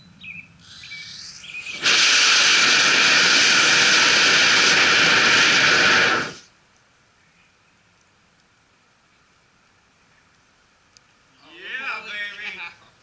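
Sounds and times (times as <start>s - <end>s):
igniter sputtering hiss: 0.6s - 6.5s
rocket motor roar: 0.6s - 6.5s.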